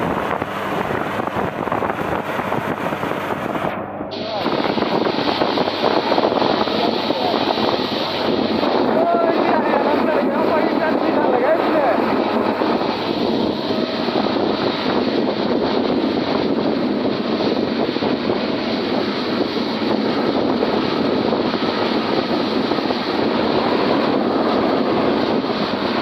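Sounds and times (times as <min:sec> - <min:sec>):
tractor engine running: 0:00.0 - 0:14.9.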